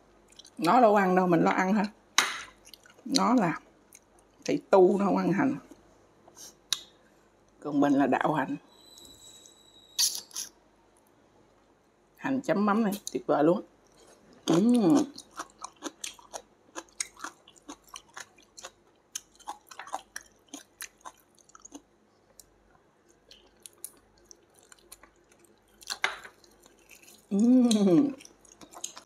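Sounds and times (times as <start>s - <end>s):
person chewing: 2.5s - 3.3s, 13.8s - 29.0s.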